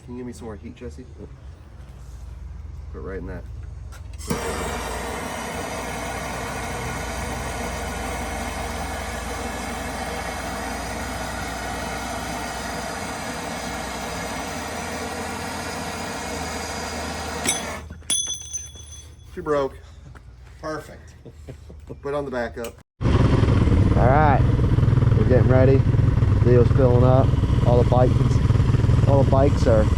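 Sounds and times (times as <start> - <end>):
heating tool roaring: 4.2 - 17.9, 23.0 - 29.9.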